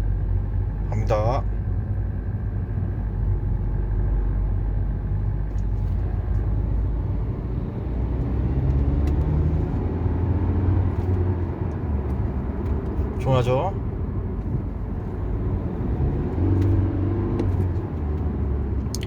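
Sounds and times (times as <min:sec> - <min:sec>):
diesel car engine accelerating: 0:00.0 - 0:19.0
road noise inside car: 0:00.0 - 0:19.0.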